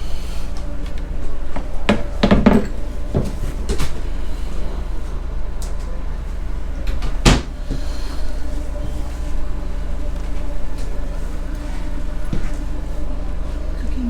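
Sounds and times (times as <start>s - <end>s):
low background hum: 0.0s - 14.0s
cabinet doors knocking shut: 1.9s - 3.4s, 7.2s - 7.6s.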